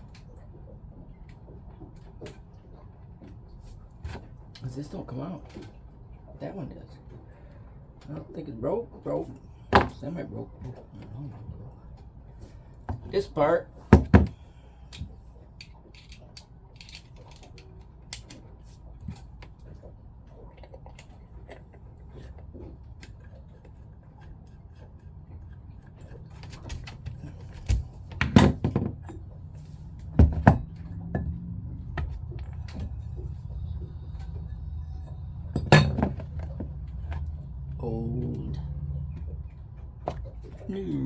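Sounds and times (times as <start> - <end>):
low steady hum: 0.0 - 41.0
clicks and knocks of pump parts: 9.7 - 10.0, 13.8 - 19.8, 26.0 - 33.3.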